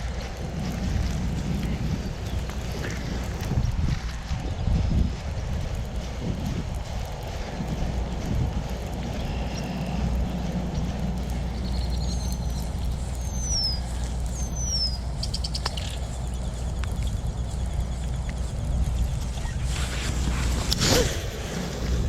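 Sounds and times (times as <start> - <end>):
wind buffeting microphone: 0.0 - 22.0
songbird whistles and trill: 11.2 - 21.1.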